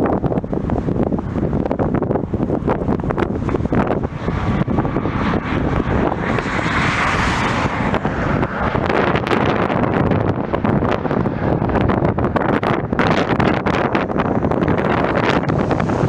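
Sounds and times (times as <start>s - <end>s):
jet airliner passing: 0.0s - 16.0s
wind buffeting microphone: 0.0s - 16.0s.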